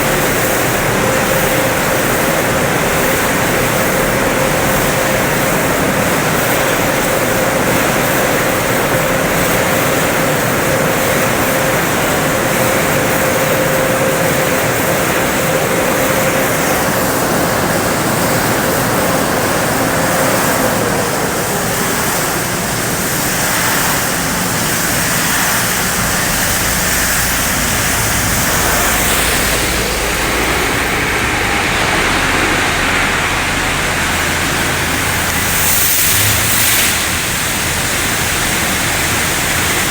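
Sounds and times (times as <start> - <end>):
high-pressure water spray: 0.0 - 39.9
low hum: 0.0 - 39.9
thin steady whine: 0.0 - 39.9.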